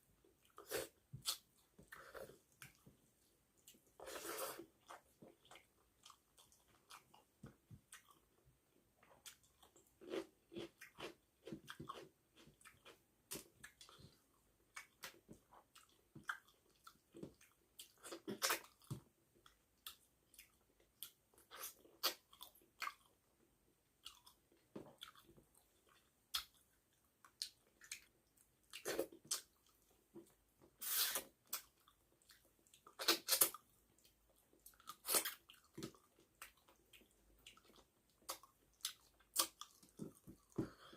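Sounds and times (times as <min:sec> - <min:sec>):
slurping: 0:04.0 - 0:04.7, 0:30.8 - 0:31.3.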